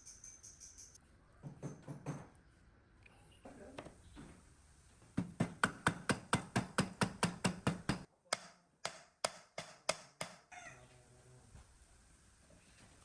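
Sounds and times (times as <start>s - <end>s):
hammer strikes: 5.2s - 10.4s.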